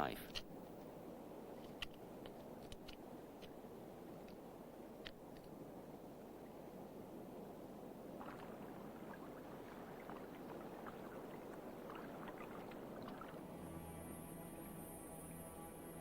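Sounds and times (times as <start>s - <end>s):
water sloshing and lapping: 7.4s - 14.6s.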